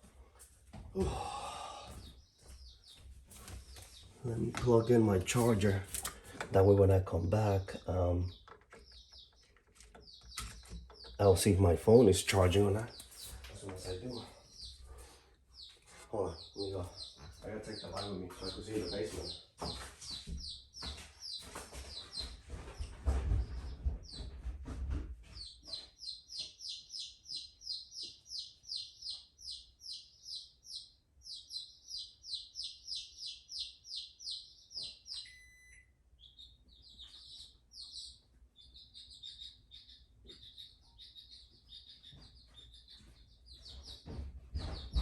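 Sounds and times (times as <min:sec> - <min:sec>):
footsteps: 0:00.0 - 0:06.6, 0:16.8 - 0:25.9, 0:42.0 - 0:45.0
bird chirping: 0:01.0 - 0:45.0.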